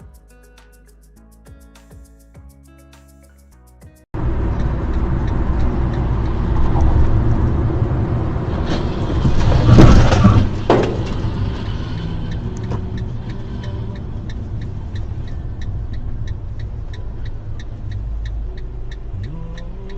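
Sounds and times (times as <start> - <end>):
vehicle road and engine rumble: 4.1 - 19.9.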